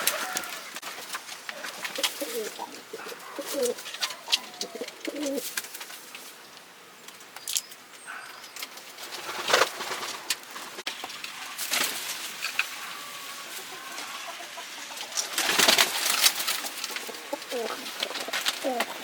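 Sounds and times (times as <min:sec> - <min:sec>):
pigeons cooing: 0:00.0 - 0:05.8, 0:11.4 - 0:19.0
rustle: 0:00.0 - 0:19.0.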